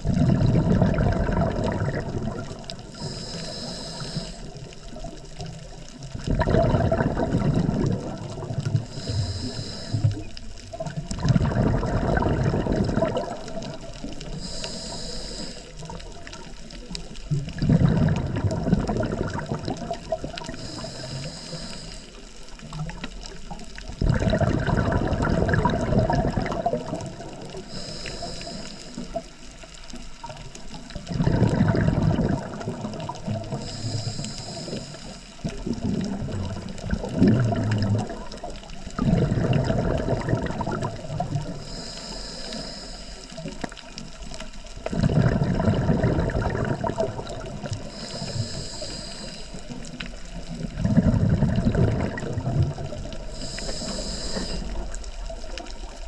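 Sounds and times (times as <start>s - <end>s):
exhaled bubbles underwater: 0.0s - 56.0s
regulator inhale hiss: 2.8s - 5.2s, 8.7s - 10.6s, 13.4s - 17.0s, 20.3s - 22.9s, 27.1s - 30.7s, 32.9s - 35.6s, 40.9s - 43.9s, 47.3s - 50.4s, 52.8s - 55.6s.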